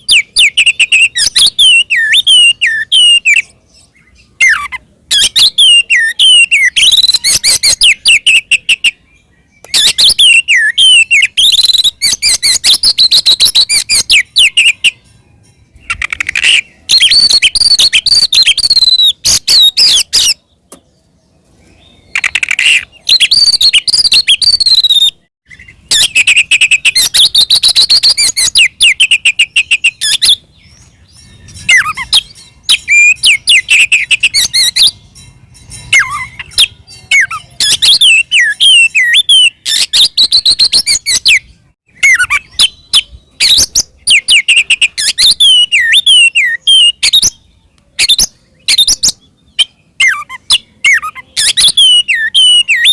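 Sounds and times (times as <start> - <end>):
magpie-robin singing: 0.0 - 52.9.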